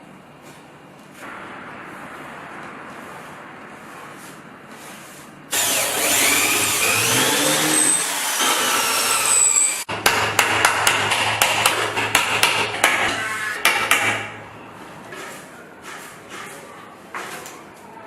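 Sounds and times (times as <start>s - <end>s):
steady low hum: 0.0s - 9.0s
power tool running: 5.5s - 9.9s
sharp knocks: 9.9s - 14.4s.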